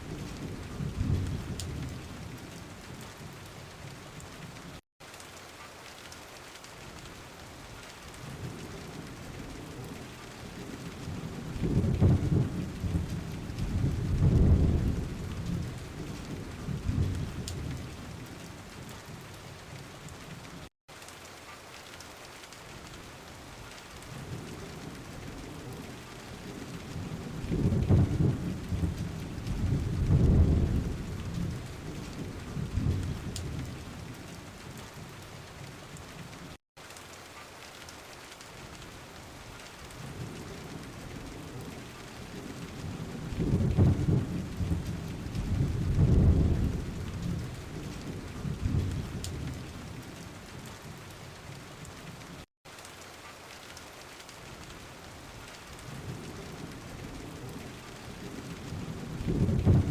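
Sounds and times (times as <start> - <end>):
thunder rumbling: 0.0 - 3.4, 8.3 - 19.3, 24.1 - 34.3, 39.9 - 51.0, 55.9 - 59.9
steady rain falling: 0.0 - 59.9.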